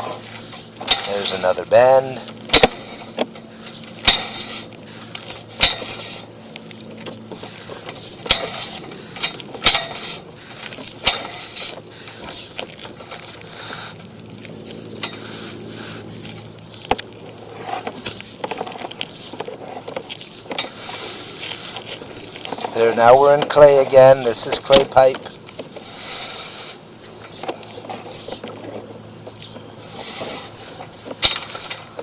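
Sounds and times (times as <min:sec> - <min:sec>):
steady low hum: 0:00.0 - 0:32.0
sharp clicks and clanks: 0:21.9 - 0:25.7.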